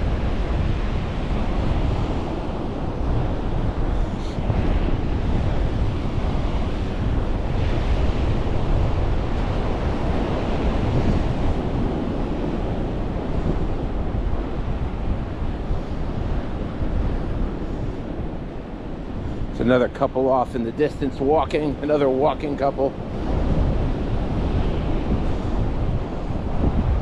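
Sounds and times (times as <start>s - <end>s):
ocean surf washing onto beach: 0.0s - 27.0s
wind buffeting the microphone: 0.0s - 27.0s.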